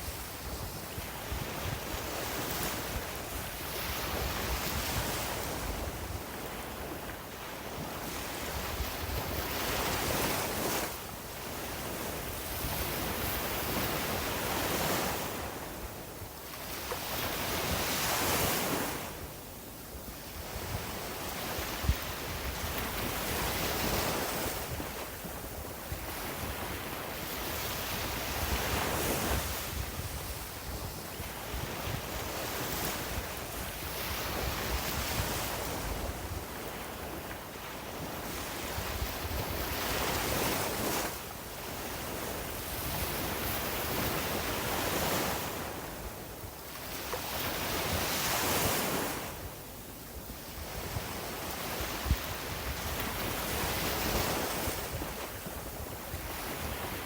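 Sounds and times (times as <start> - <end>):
sea waves breaking on beach: 20.4 - 57.0.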